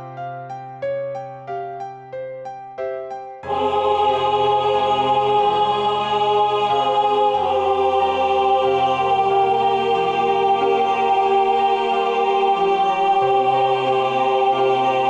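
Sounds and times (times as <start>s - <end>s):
choir singing sustained chords: 3.4s - 15.0s.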